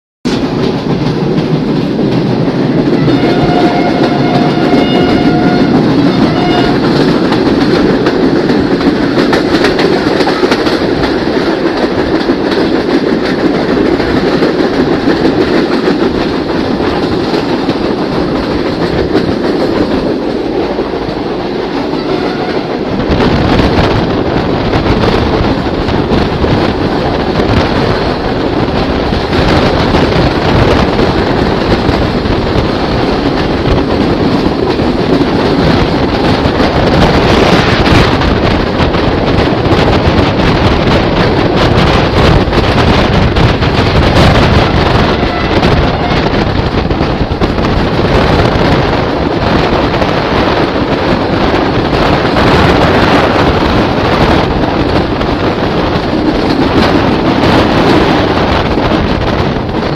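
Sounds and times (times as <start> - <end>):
train wheel and track noise: 0.2 - 59.9
train horn: 2.9 - 7.1, 21.8 - 23.0, 44.6 - 46.5.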